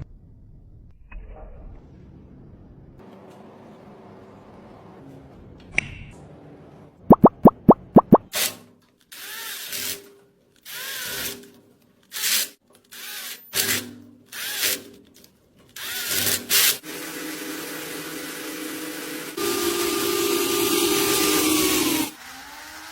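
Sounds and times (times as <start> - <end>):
handheld power tool running: 15.8 - 22.9.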